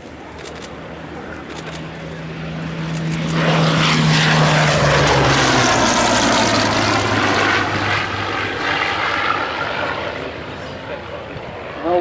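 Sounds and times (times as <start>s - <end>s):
aircraft engine flypast: 0.0s - 12.0s.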